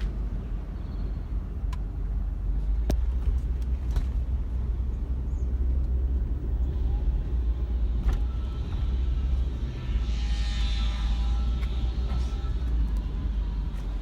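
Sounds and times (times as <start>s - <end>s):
car road rumble: 0.0s - 14.0s.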